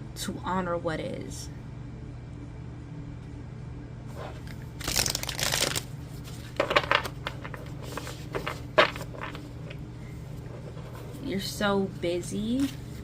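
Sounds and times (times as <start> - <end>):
cards being shuffled: 4.1 - 9.8, 12.5 - 13.0.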